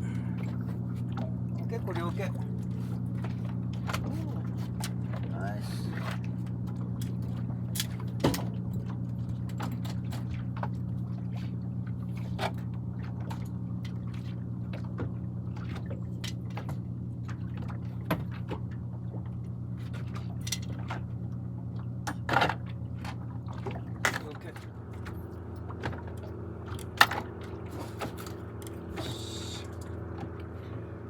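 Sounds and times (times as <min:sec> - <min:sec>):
boat engine idling: 0:00.0 - 0:31.0.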